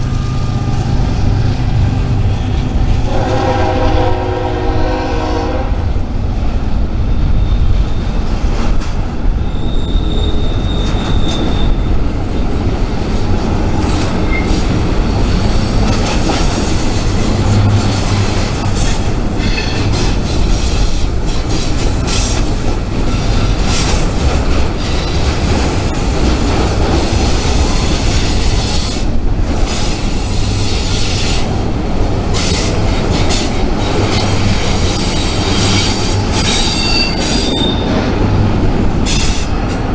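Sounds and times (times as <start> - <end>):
freight train rumble and clatter: 0.0 - 39.9
high wheel squeal: 9.4 - 12.1, 32.3 - 38.0.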